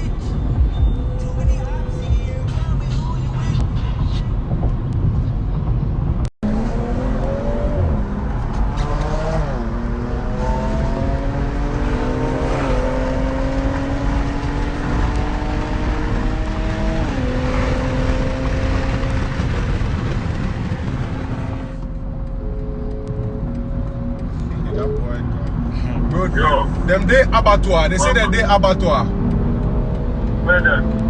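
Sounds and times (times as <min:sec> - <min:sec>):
low rumble: 0:00.0 - 0:11.6, 0:18.0 - 0:31.0
car accelerating through gears: 0:06.4 - 0:31.0.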